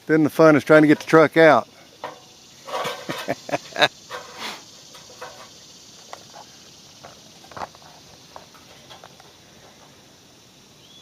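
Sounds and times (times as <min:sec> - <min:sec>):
insect chirr: 0:00.0 - 0:11.0
light knocks and rustles: 0:02.0 - 0:10.0.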